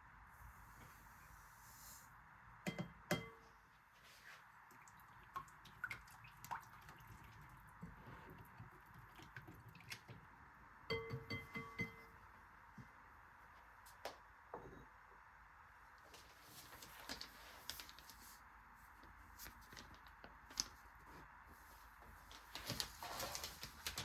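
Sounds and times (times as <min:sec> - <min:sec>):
faint steady hum: 0:00.0 - 0:24.0
kitchenware clicks and taps: 0:10.9 - 0:12.1.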